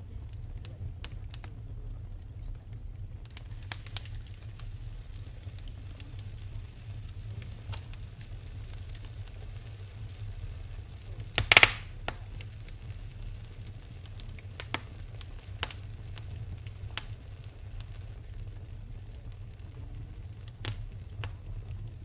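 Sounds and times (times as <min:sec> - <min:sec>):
wood fire crackling and popping: 0:00.0 - 0:22.0
loud burst of snapping: 0:03.2 - 0:04.7, 0:11.1 - 0:12.5, 0:14.3 - 0:15.8, 0:20.4 - 0:21.4.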